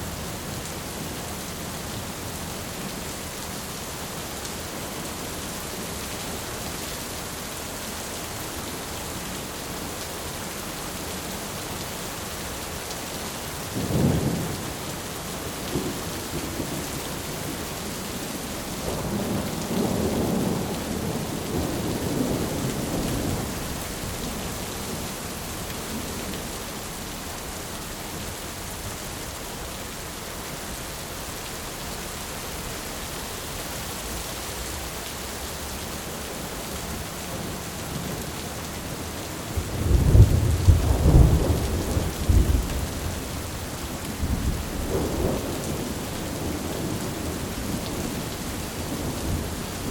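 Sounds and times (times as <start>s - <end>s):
rain hissing: 34.1s - 49.9s
rolling thunder: 39.5s - 43.5s
sharp thunderclap: 39.8s - 43.0s.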